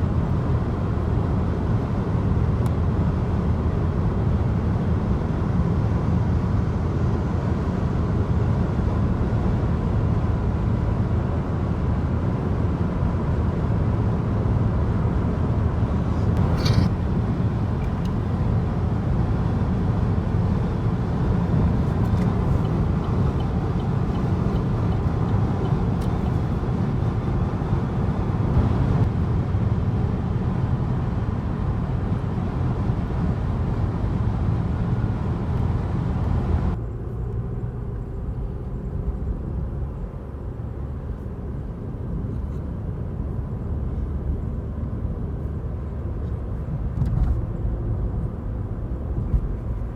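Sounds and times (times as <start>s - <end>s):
car road and engine noise: 0.0s - 49.9s.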